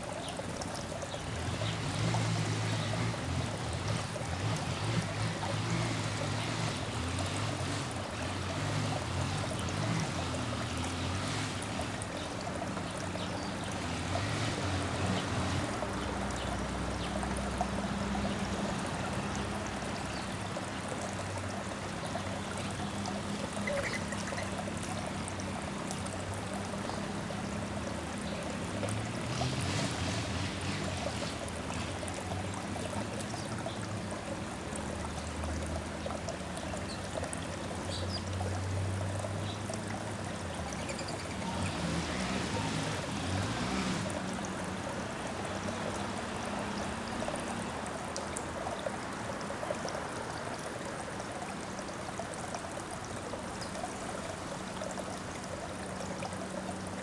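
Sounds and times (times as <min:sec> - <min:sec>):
trickling running water: 0:00.0 - 0:57.0.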